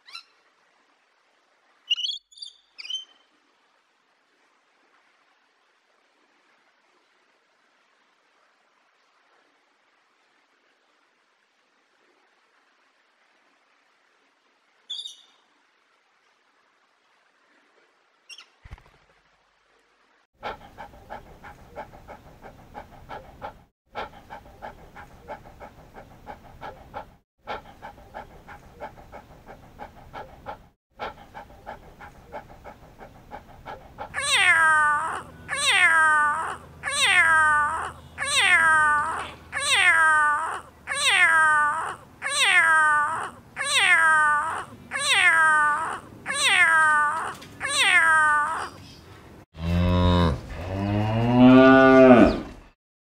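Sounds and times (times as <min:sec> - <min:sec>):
cat meowing: 0:34.2 - 0:48.8.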